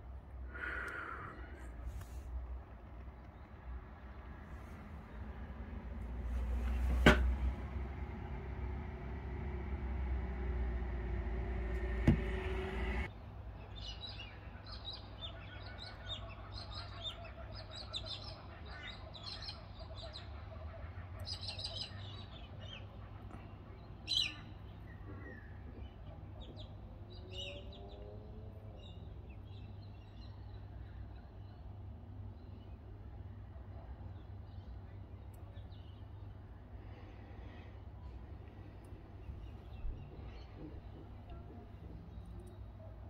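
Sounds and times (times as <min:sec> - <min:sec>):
low steady hum: 0:03.6 - 0:13.1
louder hum: 0:04.8 - 0:13.1.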